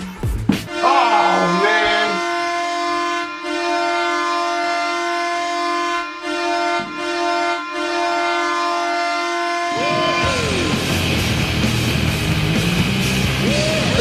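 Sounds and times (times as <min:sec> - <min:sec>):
goal music: 0:00.0 - 0:02.2
goal horn blaring: 0:00.5 - 0:11.0.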